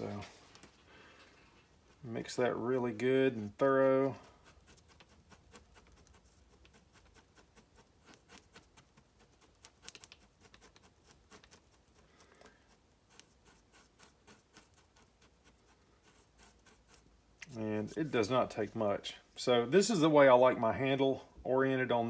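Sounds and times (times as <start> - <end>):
stick scraping in epoxy: 1.6 - 18.8.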